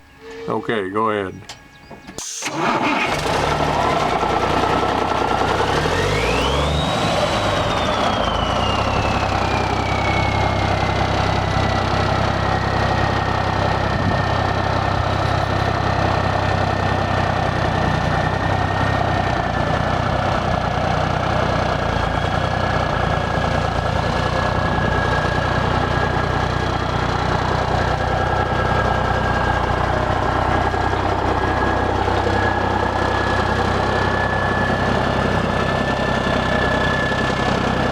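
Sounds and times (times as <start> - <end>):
diesel truck engine running: 0.0 - 37.9
high turbo whistle: 5.6 - 11.8.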